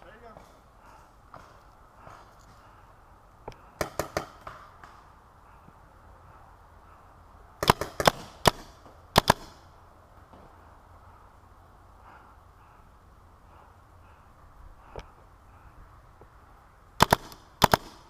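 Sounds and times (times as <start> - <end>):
paintball marker firing pops: 3.5 - 5.0, 7.6 - 9.6.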